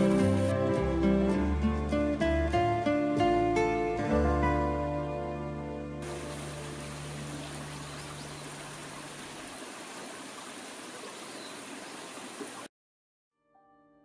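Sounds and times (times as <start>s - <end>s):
background music: 0.0s - 7.7s
flowing water rushing: 6.0s - 12.7s.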